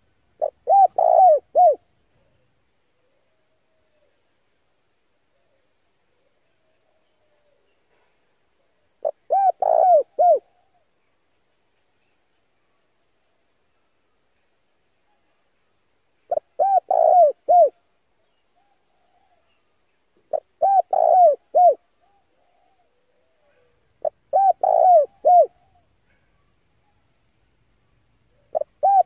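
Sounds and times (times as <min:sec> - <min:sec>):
dove cooing: 0:00.4 - 0:02.4, 0:08.7 - 0:10.8, 0:16.3 - 0:17.8, 0:20.2 - 0:25.9, 0:28.3 - 0:29.0.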